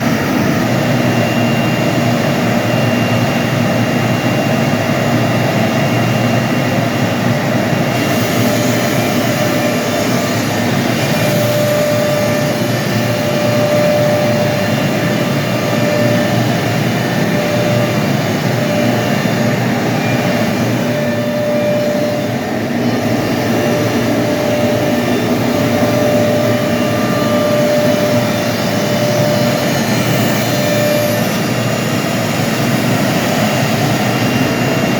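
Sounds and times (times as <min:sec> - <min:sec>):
machine tone: 0:00.0 - 0:34.9
milling machine running: 0:07.6 - 0:34.9.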